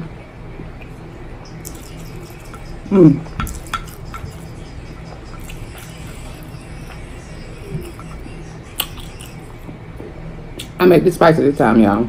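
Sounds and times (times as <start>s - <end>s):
faint low hum: 0.0s - 12.0s
wet mouth clicks and smacks: 8.7s - 9.5s.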